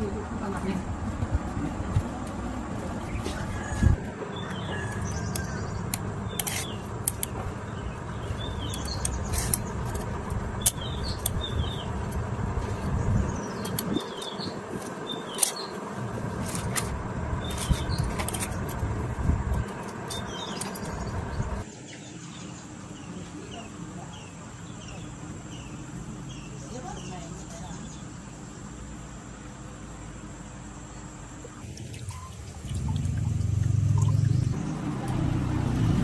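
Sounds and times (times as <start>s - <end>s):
steady low rumble: 0.0s - 21.7s, 31.3s - 34.7s
small birds chirping: 4.3s - 15.9s, 19.6s - 35.2s.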